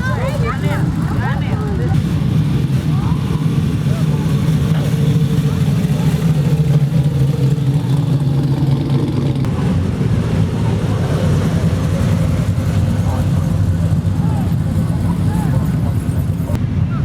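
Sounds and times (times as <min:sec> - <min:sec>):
car engine running: 0:00.0 - 0:16.6.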